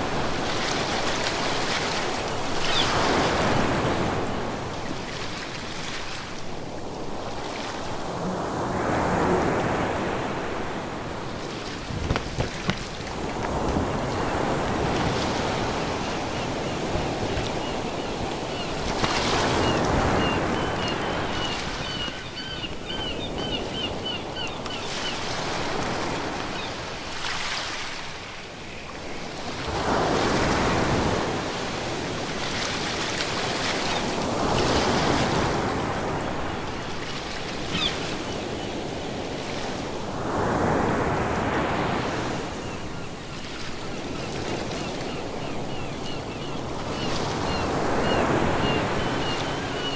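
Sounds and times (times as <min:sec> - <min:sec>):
waves breaking: 0:00.0 - 0:24.0, 0:46.6 - 0:49.9.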